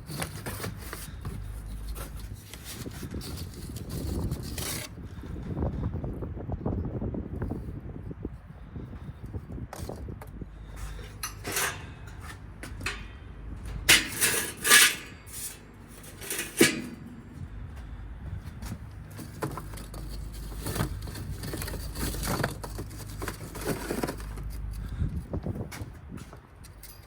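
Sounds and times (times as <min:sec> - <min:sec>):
scraping on grill grate: 0:10.6 - 0:17.5, 0:18.6 - 0:25.0
metal grill tools clinking: 0:10.8 - 0:17.4.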